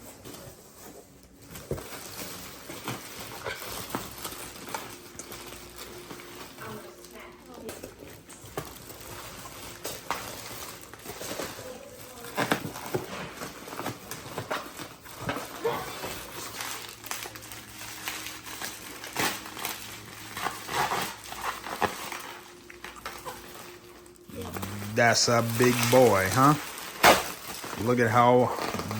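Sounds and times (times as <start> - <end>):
packing material rustling: 0.0 - 28.9.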